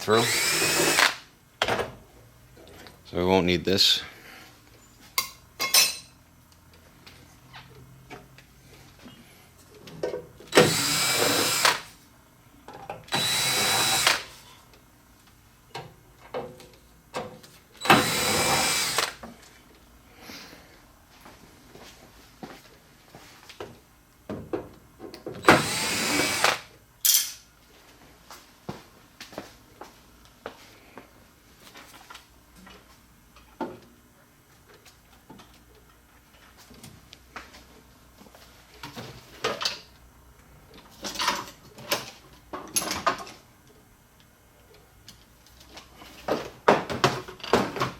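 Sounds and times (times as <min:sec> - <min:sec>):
power drill whining: 0:00.0 - 0:01.2, 0:10.5 - 0:11.9, 0:13.1 - 0:14.3, 0:17.8 - 0:19.2, 0:25.4 - 0:26.7
metal tools clicking and knocking: 0:27.0 - 0:27.4.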